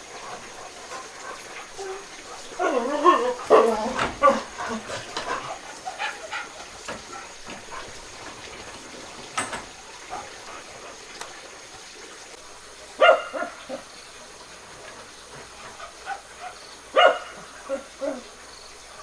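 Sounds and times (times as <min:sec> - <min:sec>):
dog yelping: 0:01.7 - 0:07.4, 0:13.0 - 0:13.8, 0:15.8 - 0:18.3
dog barking: 0:01.8 - 0:04.8, 0:05.9 - 0:07.1, 0:13.0 - 0:13.9, 0:15.7 - 0:18.3.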